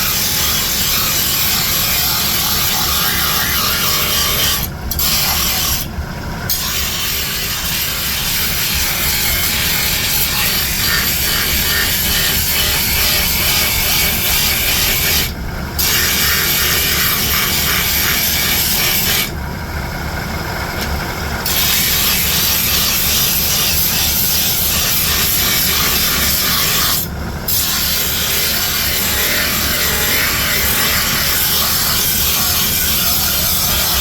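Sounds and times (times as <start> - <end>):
steel rasping on abrasive: 0.0 - 5.9, 6.5 - 19.3, 21.4 - 34.0
low machine rumble: 0.1 - 25.9.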